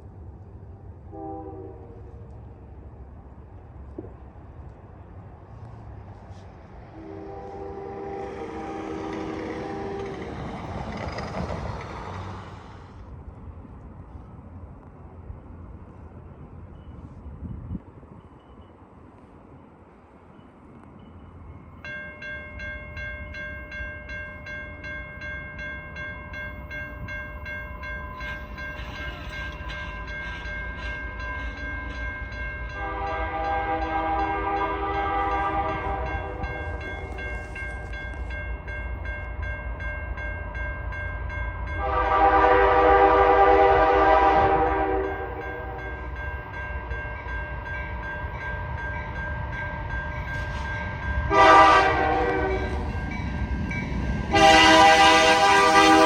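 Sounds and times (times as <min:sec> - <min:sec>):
train rumbling: 0:00.0 - 0:56.0
locomotive air horn chords: 0:01.1 - 0:02.2, 0:06.9 - 0:10.3, 0:32.7 - 0:36.7, 0:41.8 - 0:46.0, 0:51.3 - 0:52.8, 0:54.3 - 0:56.0.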